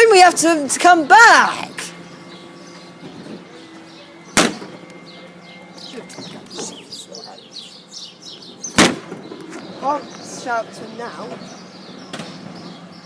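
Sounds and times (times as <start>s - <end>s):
small birds chirping: 0.1s - 13.0s
sharp bang: 4.3s - 4.8s, 8.7s - 9.3s.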